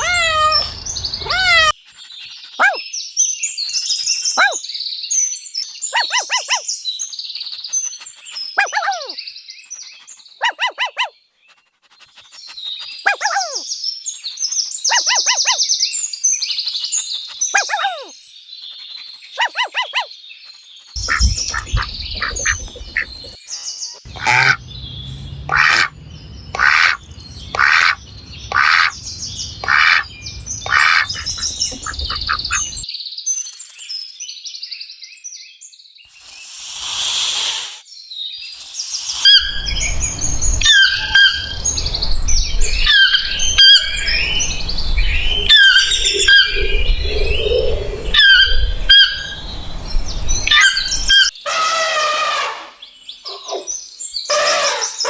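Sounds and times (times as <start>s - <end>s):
many birds chirping: 0.0s - 33.1s, 37.9s - 51.4s
bird short calls: 21.0s - 23.4s, 30.7s - 32.8s
hiss-like noise burst: 36.1s - 37.9s, 38.5s - 40.5s.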